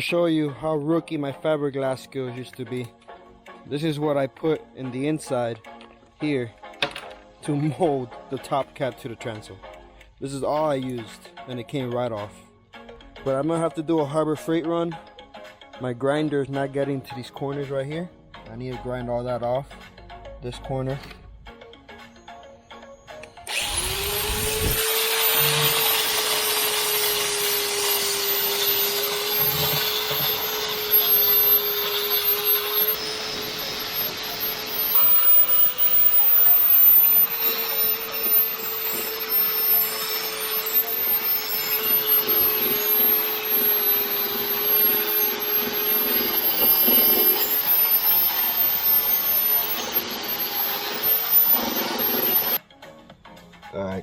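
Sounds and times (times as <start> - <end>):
electric grinder grinding fiberglass: 23.5 - 52.6.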